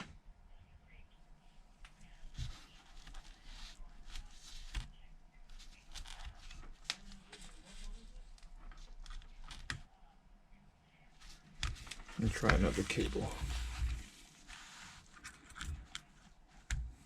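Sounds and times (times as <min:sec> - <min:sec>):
hands rustling with cables: 0:11.2 - 0:17.0.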